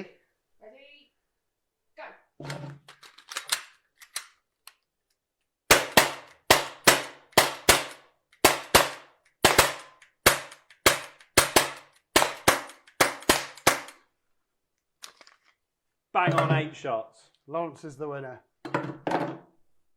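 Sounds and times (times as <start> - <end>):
air pistols firing: 5.7 - 14.0.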